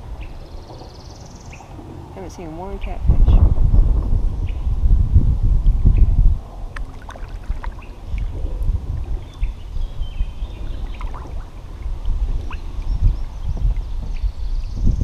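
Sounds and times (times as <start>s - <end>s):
wind rumble on microphone: 0.0s - 15.0s
water lapping around kayak: 6.4s - 14.8s.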